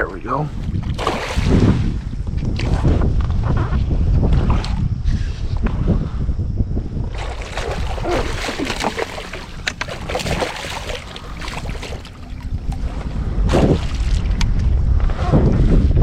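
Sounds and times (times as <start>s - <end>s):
wind rumble on microphone: 0.0s - 16.0s
fish splashing at the surface: 1.0s - 1.7s, 7.2s - 12.8s.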